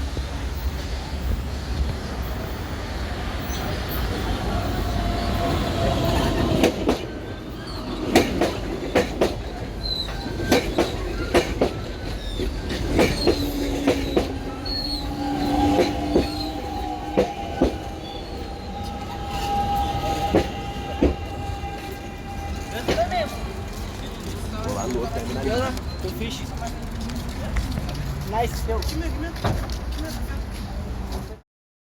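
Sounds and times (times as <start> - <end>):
wheel squeals: 3.4 - 26.6
train wheels clacking over joints: 3.4 - 31.3.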